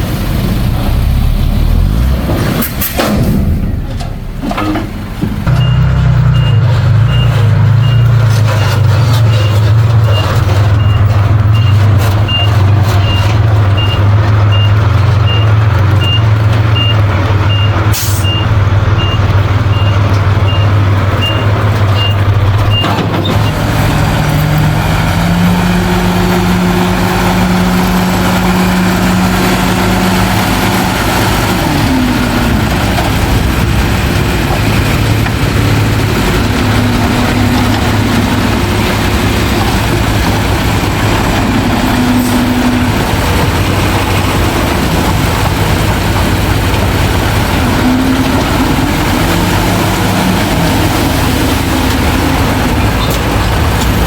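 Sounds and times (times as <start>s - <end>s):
diesel machine engine running: 0.0s - 54.0s
reversing alarm beeping: 9.3s - 23.0s.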